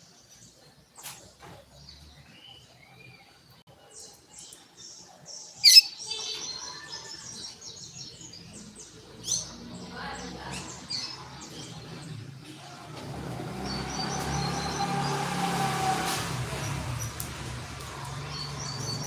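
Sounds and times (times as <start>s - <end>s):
bird singing fast high notes: 5.6s - 6.3s.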